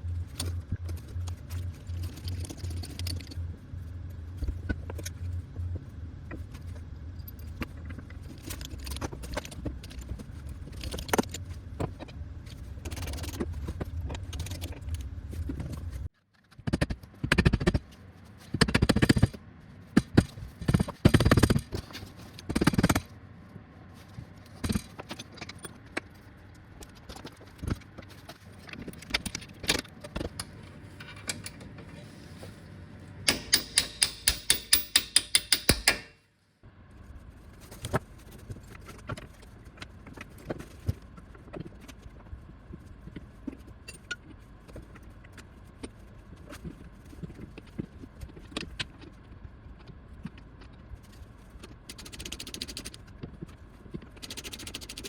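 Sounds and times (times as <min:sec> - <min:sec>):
steady low hum: 0:00.0 - 0:55.0
metal tools clinking and rattling: 0:28.8 - 0:32.3, 0:33.3 - 0:36.1.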